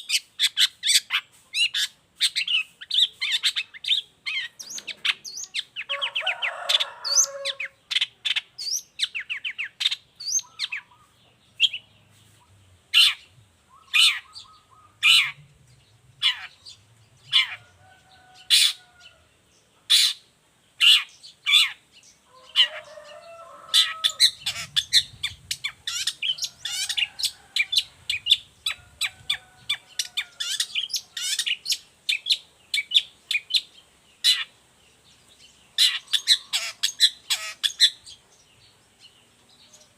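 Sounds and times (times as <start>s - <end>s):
bird song chips and trills: 0.0s - 5.9s, 7.1s - 15.5s, 23.9s - 39.9s.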